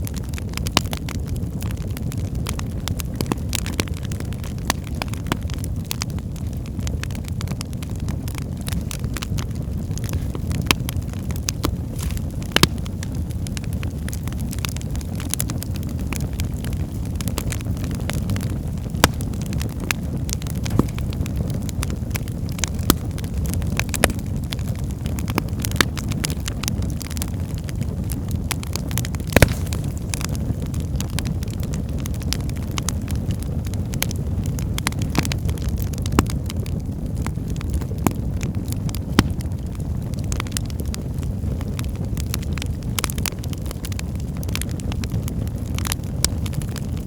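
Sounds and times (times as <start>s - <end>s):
fire crackling in fireplace: 0.0s - 47.0s.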